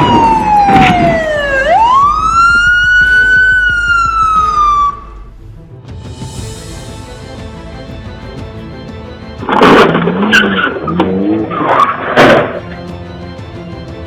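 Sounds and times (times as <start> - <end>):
police siren wailing: 0.0 - 5.3.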